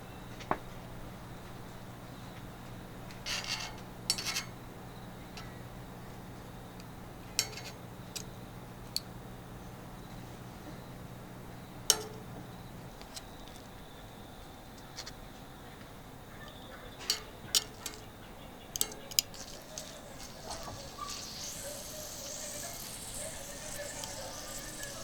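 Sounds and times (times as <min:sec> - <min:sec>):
barbecue gear clinking: 0:18.7 - 0:20.0.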